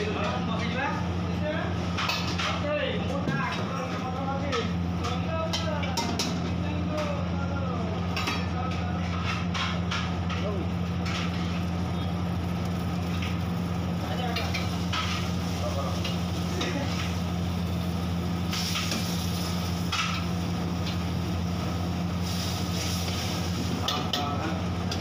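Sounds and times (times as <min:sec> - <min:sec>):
steady low hum: 0:00.0 - 0:25.0
meat sizzling in hot oil: 0:10.8 - 0:25.0.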